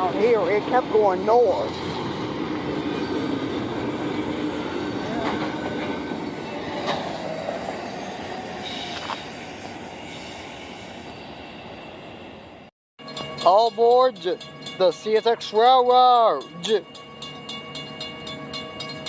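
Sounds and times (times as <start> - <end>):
freight train rumbling past: 0.0 - 19.0
faint wheel squeal: 7.7 - 12.2.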